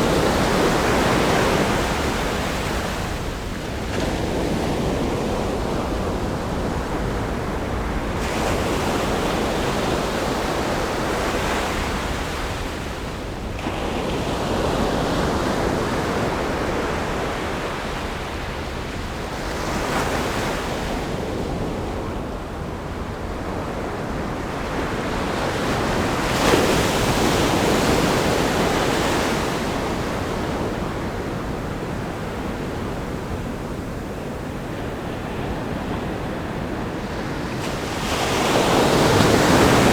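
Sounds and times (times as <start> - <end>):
ocean waves breaking: 25.4 - 39.9.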